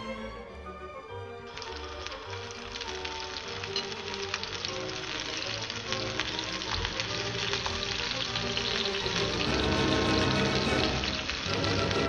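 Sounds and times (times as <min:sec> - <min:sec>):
background music: 0:00.0 - 0:12.0
patties sizzling in hot oil: 0:01.4 - 0:12.0.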